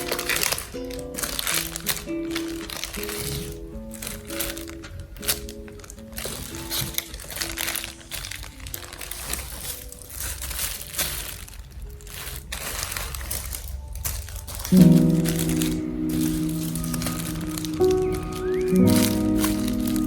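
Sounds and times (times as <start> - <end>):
packaging crinkling: 0.0 - 20.0
soft background music: 0.0 - 20.0.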